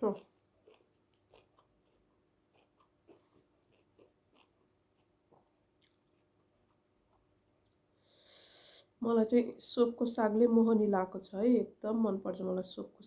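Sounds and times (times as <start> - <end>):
person chewing food: 0.0 - 7.9.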